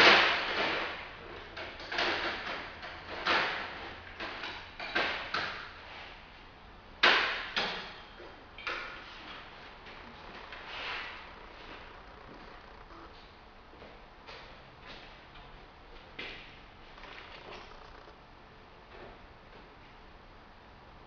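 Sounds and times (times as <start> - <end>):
clanking of tools and metal parts: 0.0 - 5.8.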